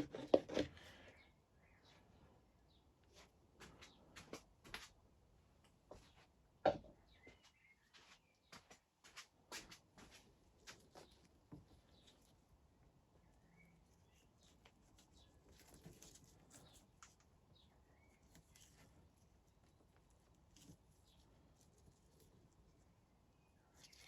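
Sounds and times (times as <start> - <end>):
faint bird chirps: 0.8 - 4.2, 6.9 - 8.7, 13.1 - 18.8.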